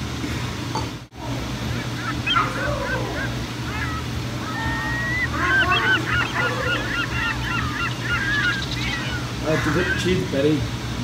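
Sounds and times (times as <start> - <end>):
low steady hum: 0.0 - 11.0
bird chirps and honks: 1.8 - 10.2.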